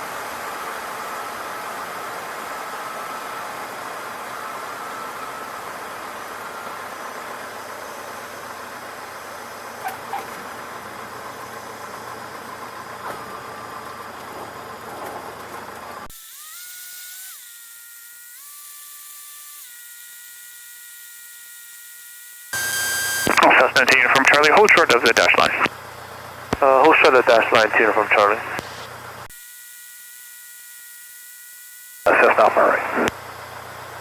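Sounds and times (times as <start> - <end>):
electronic hum stepping in pitch: 22.6 - 23.7
aircraft cabin engine hiss: 26.6 - 29.0, 32.1 - 33.1.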